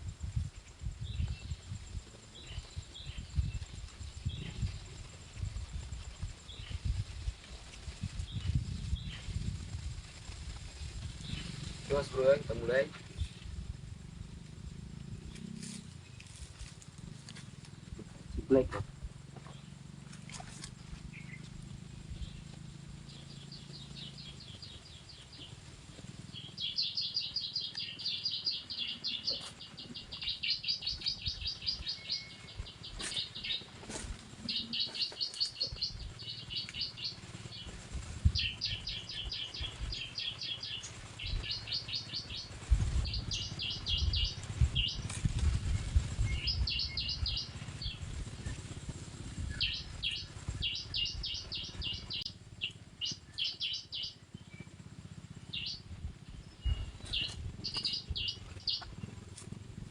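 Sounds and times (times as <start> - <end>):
bird song trills from speaker: 26.3 - 33.7, 34.4 - 37.6, 38.3 - 45.2, 46.2 - 48.6, 49.5 - 54.8, 55.5 - 59.2.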